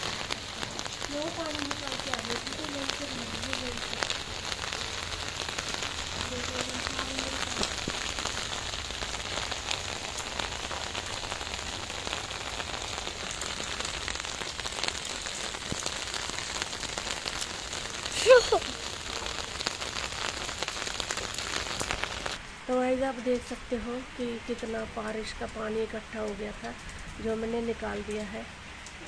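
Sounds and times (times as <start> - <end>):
heavy rain splashing into water: 0.0 - 23.6, 24.2 - 29.0.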